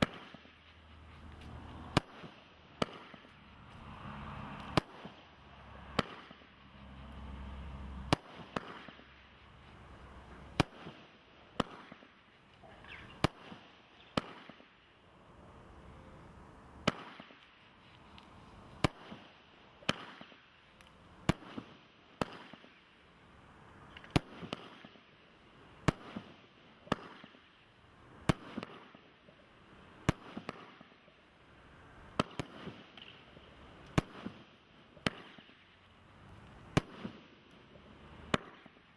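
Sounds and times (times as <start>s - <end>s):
firework bangs: 0.0s - 0.6s, 1.5s - 12.2s, 13.1s - 14.8s, 16.8s - 17.5s, 18.8s - 20.4s, 24.1s - 25.0s, 30.0s - 31.0s, 32.1s - 33.2s, 33.9s - 35.6s, 36.7s - 37.5s, 38.1s - 38.9s.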